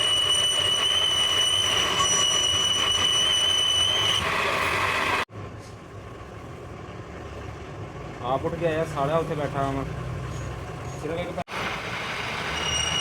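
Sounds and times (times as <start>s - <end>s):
high-pitched metal squeal: 0.0s - 5.2s, 12.0s - 13.0s
loud machine noise: 0.0s - 5.3s, 11.5s - 13.0s.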